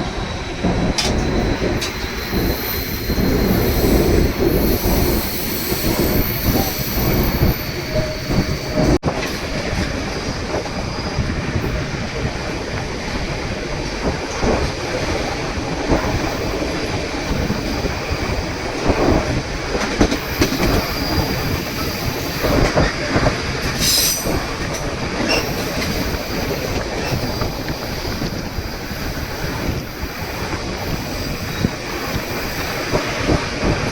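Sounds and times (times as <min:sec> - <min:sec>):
train wheels rumbling on rails: 0:00.0 - 0:33.9
wheel squeal: 0:00.1 - 0:09.0, 0:20.1 - 0:33.4.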